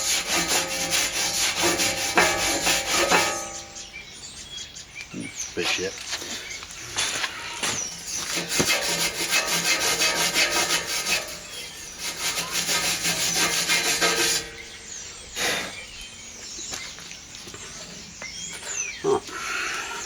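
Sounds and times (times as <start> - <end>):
wire brush scrubbing steel welds: 0.0 - 3.9, 7.9 - 14.7.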